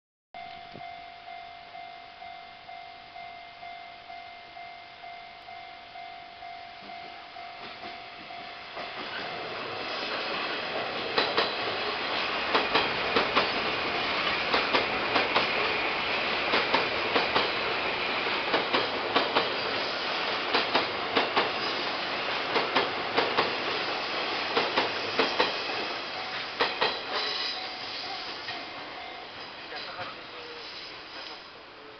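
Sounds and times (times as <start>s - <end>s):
level crossing warning bell: 0.4s - 9.8s, 19.5s - 22.6s, 25.4s - 30.4s
train wheels clicking over rail joints: 7.6s - 27.7s.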